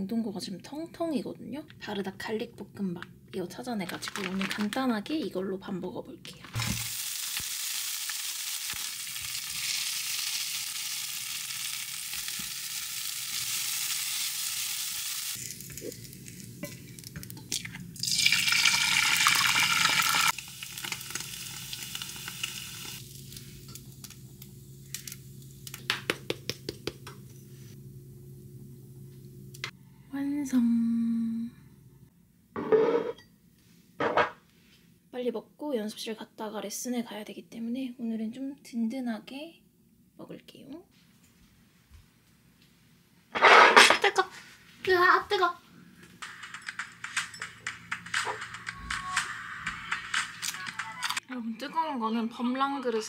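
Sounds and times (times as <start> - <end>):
rice sizzling in frying pan: 6.6 - 17.3, 18.0 - 25.8.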